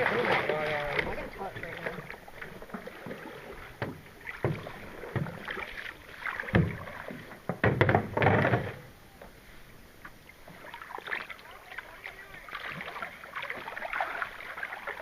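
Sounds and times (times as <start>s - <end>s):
paddles knocking against canoe: 0.0s - 9.4s
paddles splashing: 0.0s - 15.0s.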